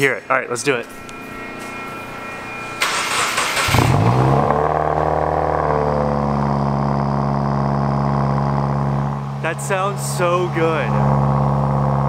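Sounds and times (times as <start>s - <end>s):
car engine revving then idling: 2.8s - 12.0s
engine cranking: 2.8s - 12.0s.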